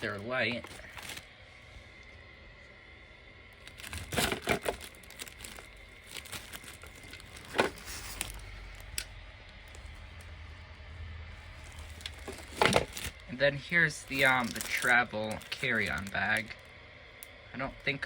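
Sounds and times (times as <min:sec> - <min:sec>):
plastic wrapping crinkling: 0:00.0 - 0:01.4, 0:03.5 - 0:10.3, 0:11.4 - 0:16.6
packaging clicks: 0:03.6 - 0:09.8, 0:14.1 - 0:16.4.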